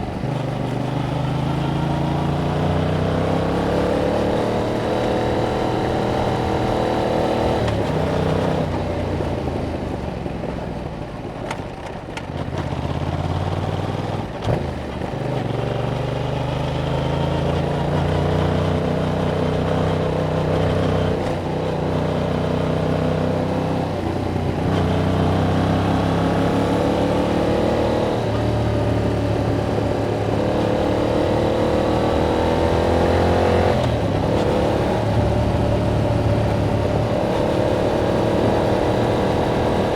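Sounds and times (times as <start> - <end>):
motorcycle engine revving: 0.0 - 10.0, 12.3 - 39.9.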